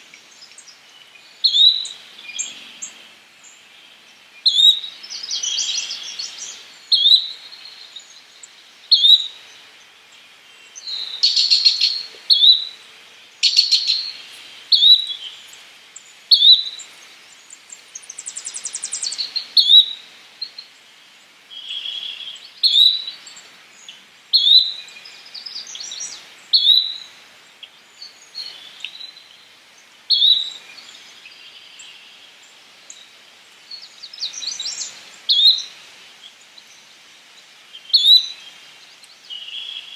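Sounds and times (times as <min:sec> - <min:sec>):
flycatcher calling: 0:00.0 - 0:03.6, 0:04.4 - 0:09.4, 0:10.8 - 0:20.0, 0:24.3 - 0:27.1, 0:33.7 - 0:36.8.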